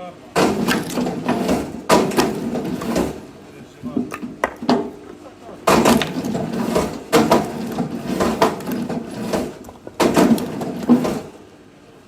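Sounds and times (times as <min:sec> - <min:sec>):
axe blows splitting firewood: 0:00.4 - 0:03.2, 0:05.6 - 0:11.4
wood cracking and clattering: 0:00.4 - 0:03.3, 0:04.0 - 0:11.4.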